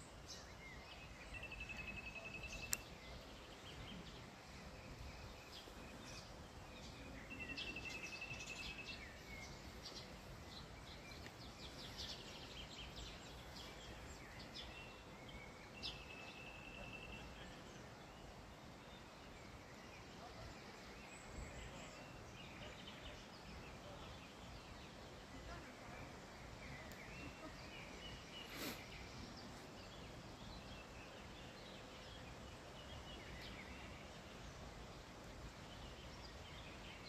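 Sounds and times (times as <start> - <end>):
bird chirps: 0.0 - 18.3
outdoor background hiss: 0.0 - 37.0.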